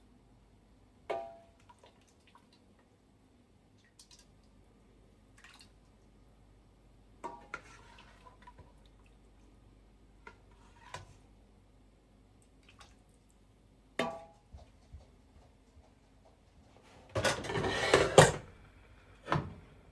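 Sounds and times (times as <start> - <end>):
dishes and utensils clinking: 17.2 - 18.4.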